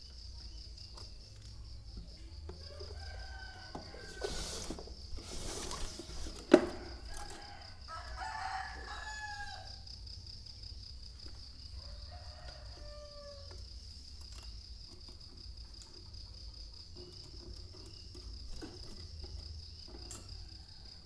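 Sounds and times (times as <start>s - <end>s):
high insect trill: 0.0s - 21.0s
rustle: 2.5s - 9.6s
rooster crowing: 2.6s - 4.7s, 6.7s - 9.9s, 11.7s - 13.6s, 20.1s - 21.0s.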